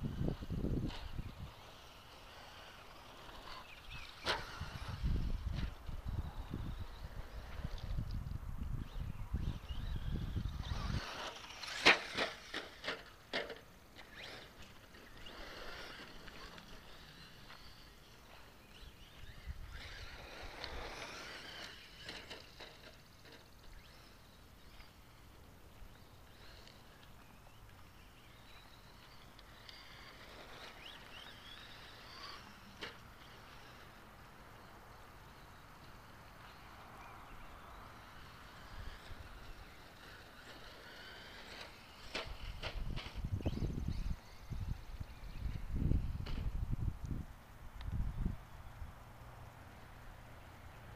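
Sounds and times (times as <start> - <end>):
rc truck drivetrain and tyres: 0.0 - 50.9.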